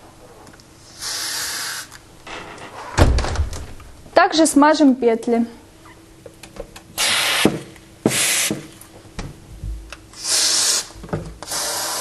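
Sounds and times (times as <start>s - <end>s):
aerosol can spraying: 1.0s - 2.0s, 7.0s - 8.6s, 10.2s - 12.0s.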